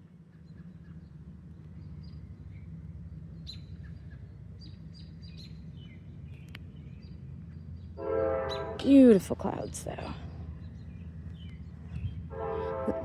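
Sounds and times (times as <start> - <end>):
steady low rumble: 8.7 - 13.0.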